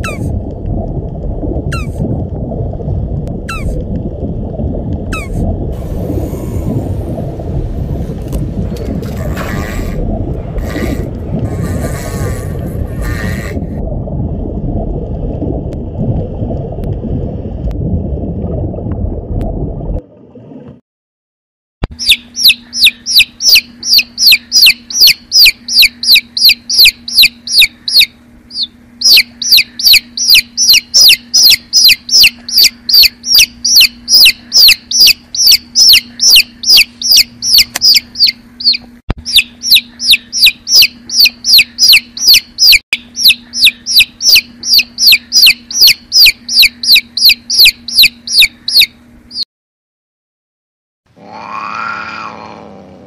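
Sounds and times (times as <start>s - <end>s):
low steady rumble: 0.0s - 20.8s, 21.8s - 49.4s
quail chicks peeping: 22.0s - 49.4s.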